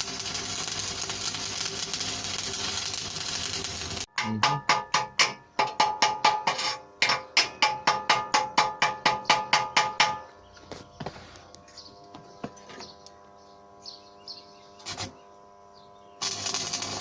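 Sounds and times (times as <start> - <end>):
metal struck ringing: 4.1 - 6.4.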